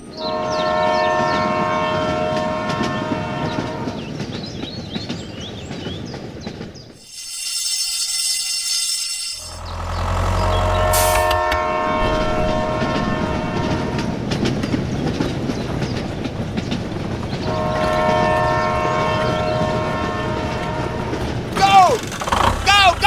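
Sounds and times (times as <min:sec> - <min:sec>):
multi-tone horn blasts: 0:00.2 - 0:04.0, 0:09.4 - 0:14.2, 0:17.5 - 0:23.0
rumbling clattering noise: 0:09.5 - 0:18.1.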